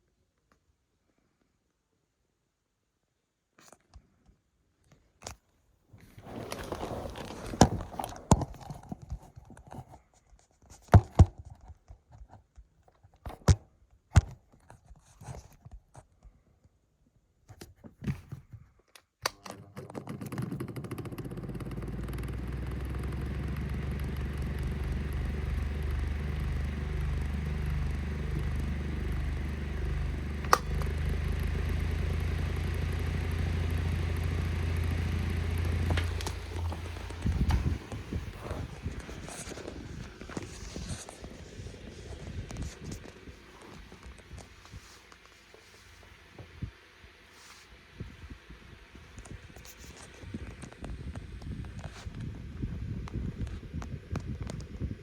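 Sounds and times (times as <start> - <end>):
knocks and scraping of handling: 6.0 - 10.0
desk fan running: 6.1 - 8.9, 19.9 - 55.0.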